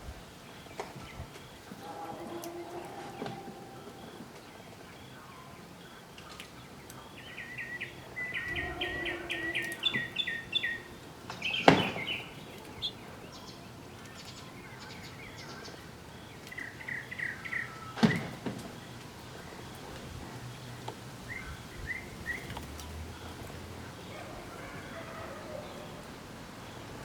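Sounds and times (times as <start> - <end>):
bird chirps: 0.3 - 27.0
sharp knocks: 11.5 - 12.2.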